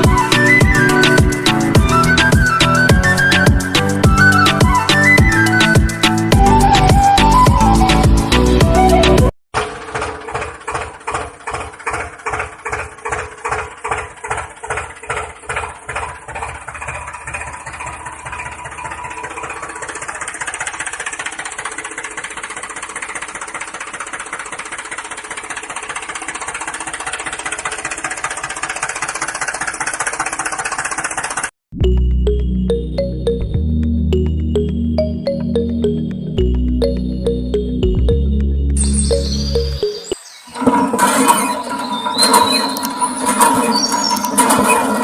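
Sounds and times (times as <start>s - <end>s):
small motor chugging: 9.6s - 31.5s, 40.6s - 45.0s.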